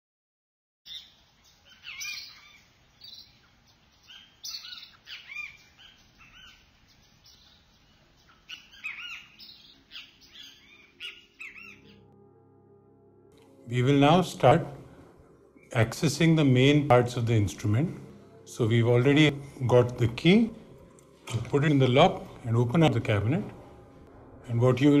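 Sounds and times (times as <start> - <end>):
songbirds chirping: 0.9 - 12.2.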